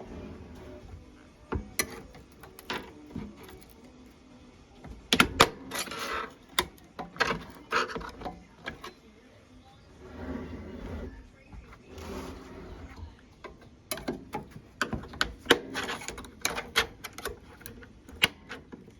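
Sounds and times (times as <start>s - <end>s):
knocks and scraping: 0.0s - 9.0s, 9.9s - 18.9s
tools clicking and tapping: 0.6s - 4.1s, 4.8s - 9.0s, 13.0s - 18.9s.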